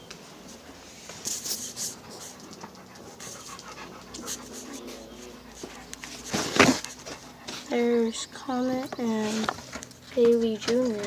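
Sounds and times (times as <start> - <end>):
dog panting: 1.3 - 11.0.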